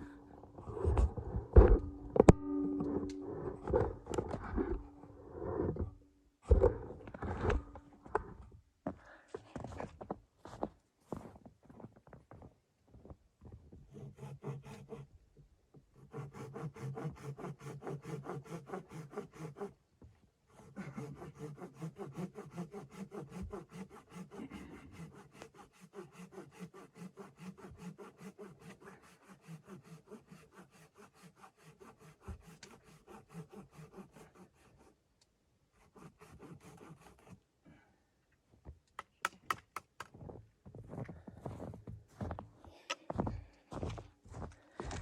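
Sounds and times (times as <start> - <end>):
rapid rubbing strokes: 16.0 - 19.8, 20.6 - 35.0, 35.8 - 37.4.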